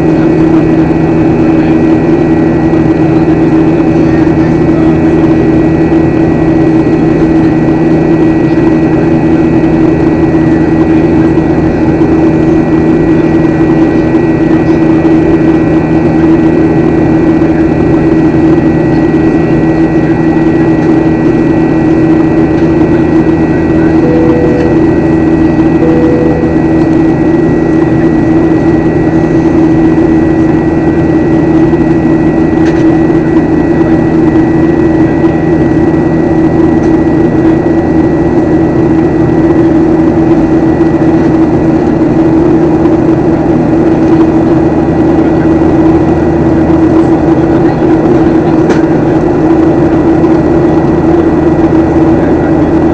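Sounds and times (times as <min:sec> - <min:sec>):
airliner cabin engine drone: 0:00.0 - 0:52.9
short faint tones: 0:24.0 - 0:25.1, 0:25.8 - 0:26.8.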